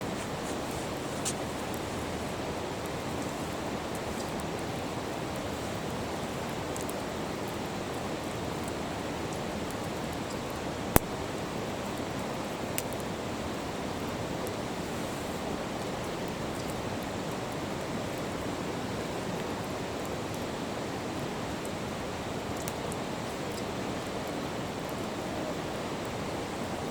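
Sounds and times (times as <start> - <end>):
river rushing: 0.0 - 9.2
sharp pop: 11.0 - 11.2.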